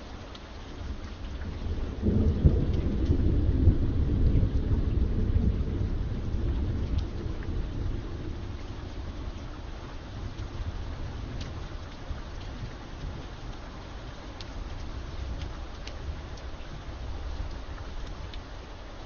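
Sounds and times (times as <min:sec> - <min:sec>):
steady rain falling: 0:00.0 - 0:19.0
thunder rolling: 0:01.4 - 0:12.8.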